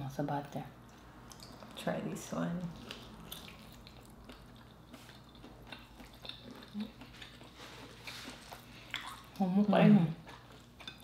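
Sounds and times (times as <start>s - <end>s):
faint wet chewing: 0.8s - 1.9s, 2.7s - 9.5s, 10.1s - 11.0s.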